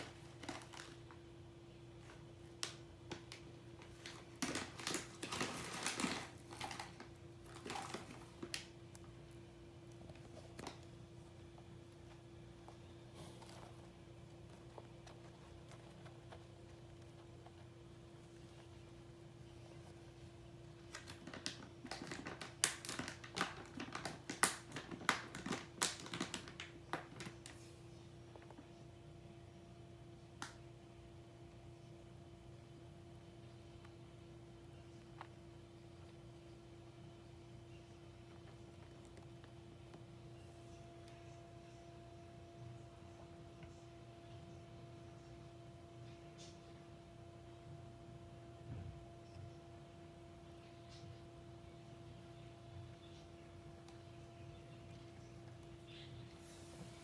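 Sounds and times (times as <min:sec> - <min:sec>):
hamster crunching food: 0:02.2 - 0:27.6.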